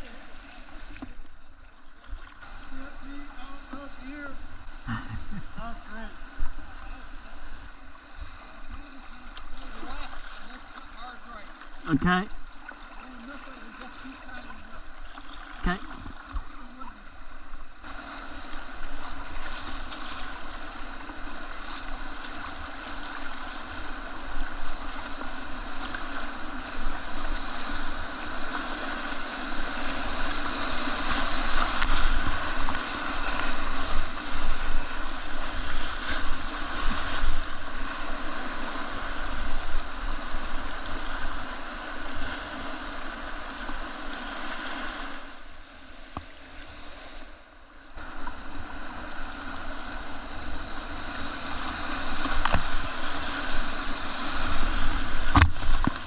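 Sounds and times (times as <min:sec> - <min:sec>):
whitewater rushing: 0:02.5 - 0:45.3.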